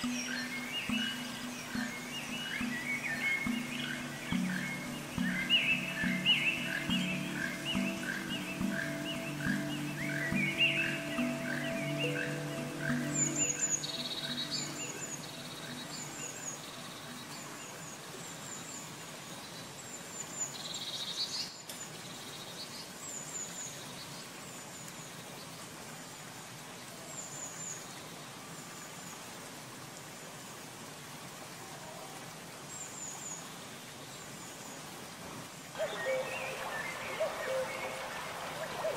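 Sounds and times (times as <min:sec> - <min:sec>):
buzzy bird trill: 0:00.0 - 0:16.7
small birds chirping: 0:00.0 - 0:25.6, 0:35.8 - 0:38.9
faint steady hiss: 0:00.0 - 0:38.9.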